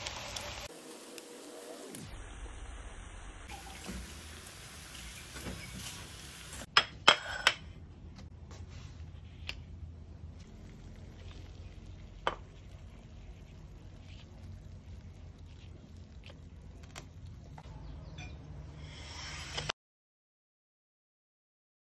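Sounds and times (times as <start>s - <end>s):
banana sizzling in caramel: 0.0s - 6.7s, 10.4s - 17.6s.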